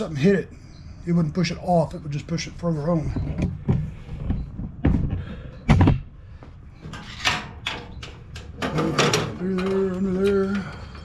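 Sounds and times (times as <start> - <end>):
metal clanks and knocks: 6.8 - 11.0.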